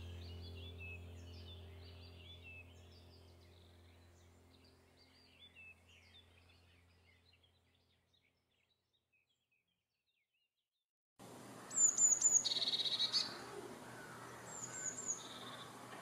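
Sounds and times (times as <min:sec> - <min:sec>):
low steady hum: 0:00.0 - 0:07.9
small birds chirping: 0:00.0 - 0:10.3, 0:11.4 - 0:16.0.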